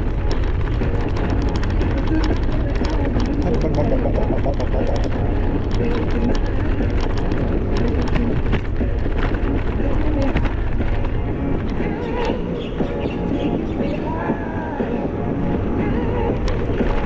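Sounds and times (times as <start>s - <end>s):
bicycle clicks and rattles: 0.0s - 12.4s
wind buffeting microphone: 0.0s - 17.0s.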